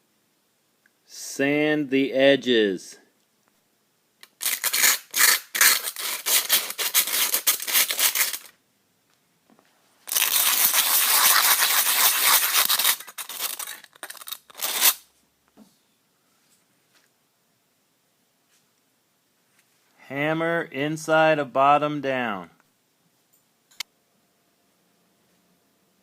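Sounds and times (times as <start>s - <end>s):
sandpaper scratching aluminium can: 4.4s - 8.5s, 10.1s - 15.0s.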